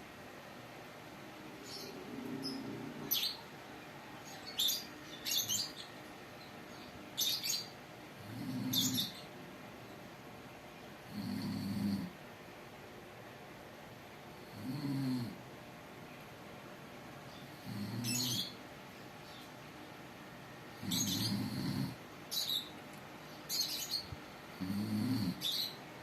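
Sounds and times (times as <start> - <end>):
lovebird chirping: 1.6 - 7.8, 8.4 - 9.3, 17.3 - 18.6, 20.8 - 21.7, 22.3 - 24.2, 25.3 - 25.8.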